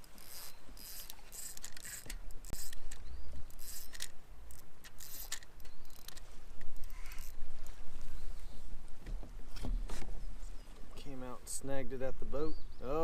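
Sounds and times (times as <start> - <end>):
fishing reel hissing and clicking: 0.0 - 7.4.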